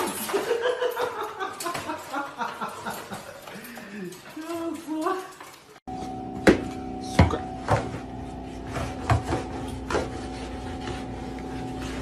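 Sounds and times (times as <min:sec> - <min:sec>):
steady hum: 0:05.9 - 0:12.0.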